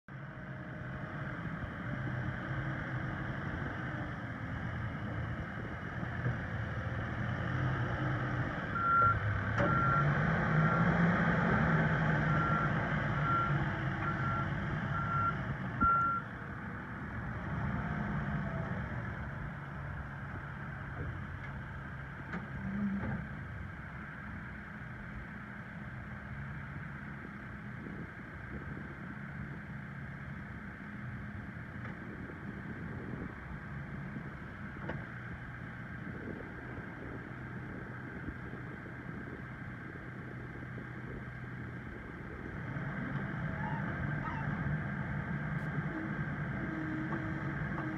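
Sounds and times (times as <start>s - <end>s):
diesel engine revving: 0.2s - 24.6s, 25.9s - 47.9s
reversing alarm beeping: 8.7s - 10.8s.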